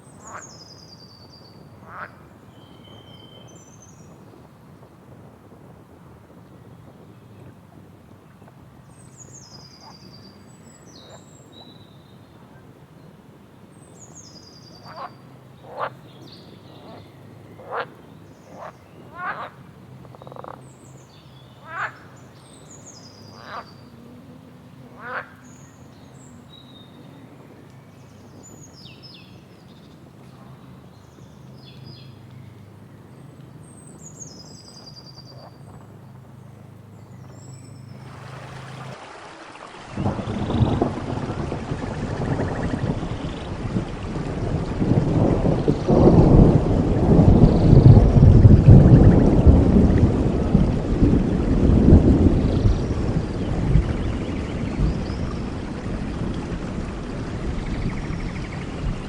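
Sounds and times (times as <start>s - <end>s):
sharp bird calls: 0.0s - 3.9s, 13.9s - 30.7s.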